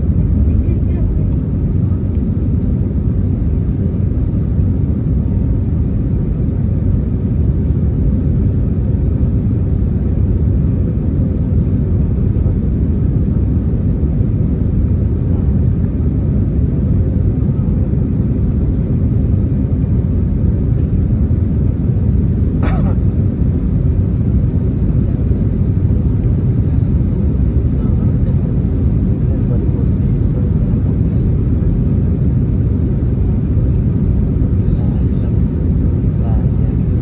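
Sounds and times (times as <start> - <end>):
airplane cabin engine rumble: 0.0 - 37.0.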